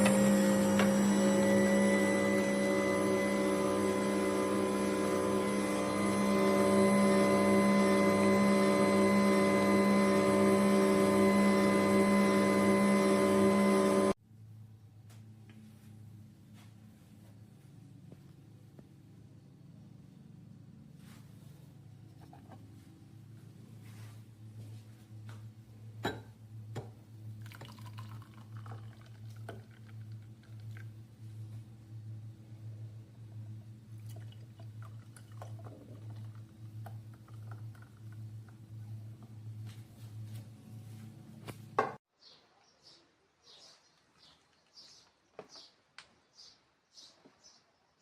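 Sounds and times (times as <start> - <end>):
juicer motor humming: 0.0 - 14.2, 26.0 - 40.4.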